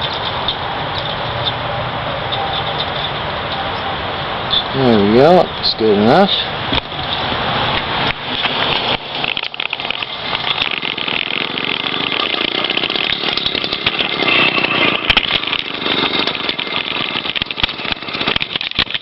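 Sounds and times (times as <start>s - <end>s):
two-stroke engine firing raggedly: 8.2s - 19.0s.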